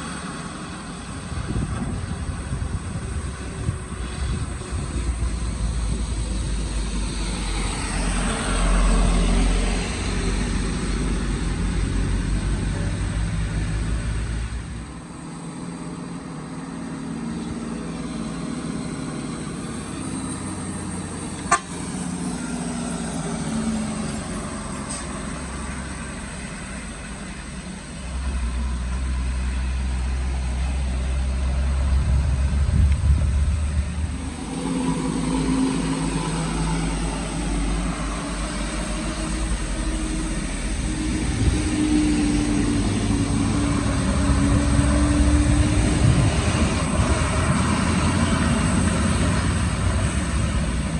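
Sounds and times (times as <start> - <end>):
vehicle engines passing: 0.0 - 50.9.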